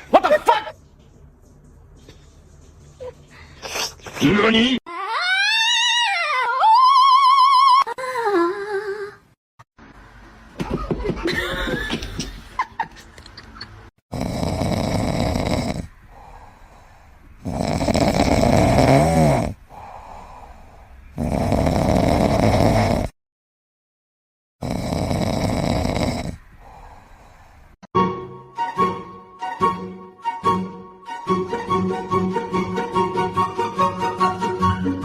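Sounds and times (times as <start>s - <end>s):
loud snoring: 14.1s - 23.2s, 24.6s - 27.4s.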